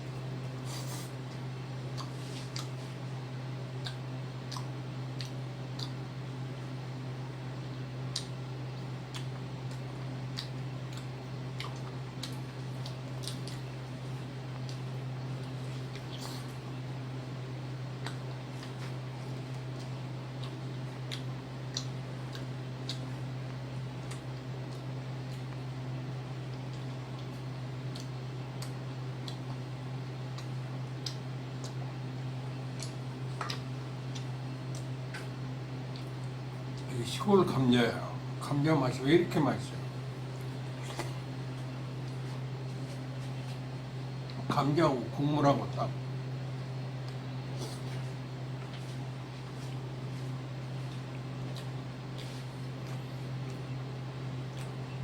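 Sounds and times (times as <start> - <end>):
steady low hum: 0.0 - 55.0
mouth clicks and lip smacks: 3.8 - 6.0, 8.1 - 8.4, 9.1 - 13.7, 30.3 - 31.8, 32.8 - 36.4, 40.7 - 42.4.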